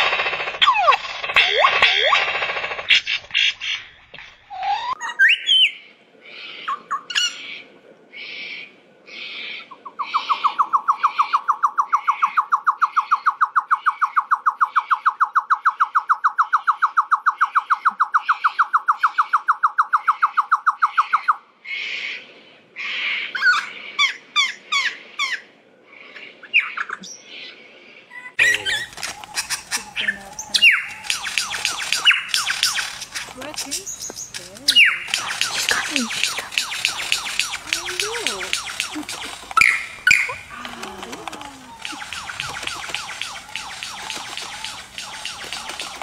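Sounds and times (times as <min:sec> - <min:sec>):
bird trilling: 0:00.6 - 0:03.9, 0:28.2 - 0:46.0
harsh rasping bird notes: 0:28.4 - 0:46.0.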